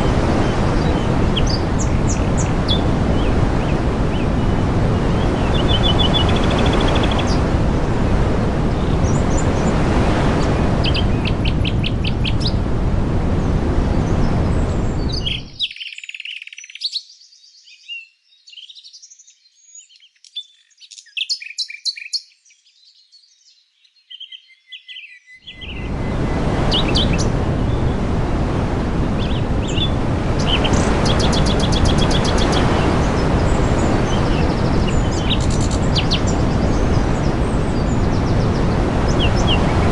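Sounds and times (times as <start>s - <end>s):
small birds chirping: 0.0s - 7.5s, 8.8s - 12.6s, 13.5s - 28.1s, 29.2s - 39.9s
loud steady rushing noise: 0.0s - 15.5s, 25.6s - 39.9s.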